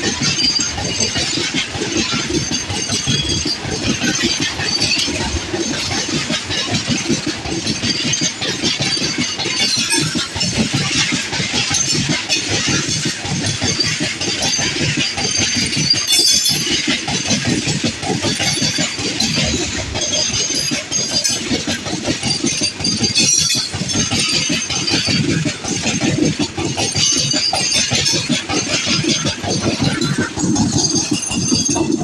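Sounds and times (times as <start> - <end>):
train wheels clattering on rails: 0.0 - 32.0.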